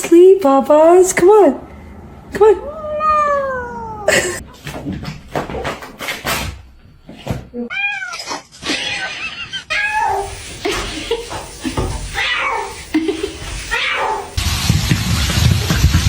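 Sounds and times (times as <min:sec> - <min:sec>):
cat meowing: 0:02.6 - 0:04.1, 0:07.7 - 0:09.1, 0:09.7 - 0:10.6, 0:11.4 - 0:12.9, 0:13.5 - 0:14.4.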